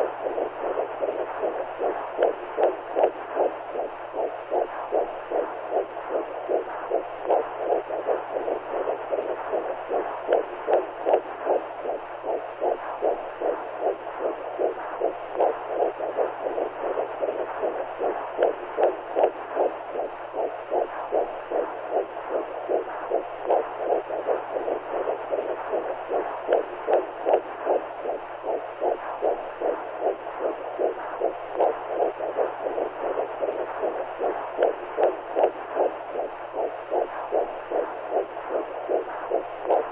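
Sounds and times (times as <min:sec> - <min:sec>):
muffled rhythmic whooshing: 0:00.0 - 0:39.9.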